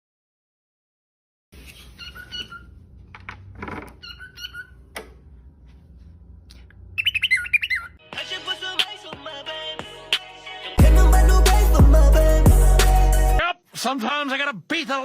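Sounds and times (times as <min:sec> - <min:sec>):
bird chirping: 0:01.7 - 0:02.7, 0:04.0 - 0:04.8, 0:07.0 - 0:08.0
bird warbling: 0:01.8 - 0:02.7, 0:04.0 - 0:04.8, 0:07.0 - 0:08.0
music: 0:08.0 - 0:13.4.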